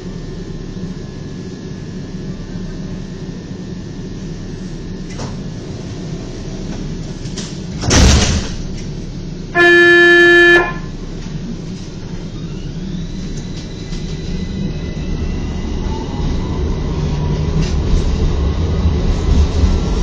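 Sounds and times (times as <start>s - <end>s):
tram rumbling: 0.0s - 20.0s
single-pitched warning signal: 9.5s - 11.0s.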